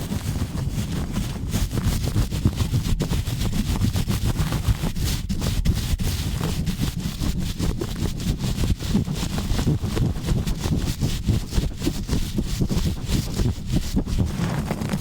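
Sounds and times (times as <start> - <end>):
microphone rubbing and scratching: 0.0 - 15.0.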